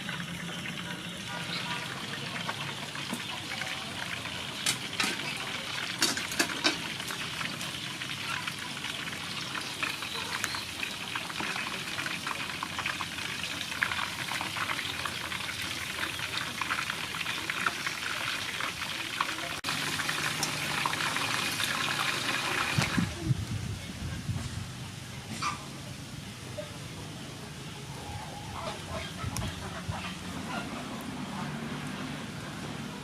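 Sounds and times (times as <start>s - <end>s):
food sizzling in hot oil: 1.8s - 23.2s.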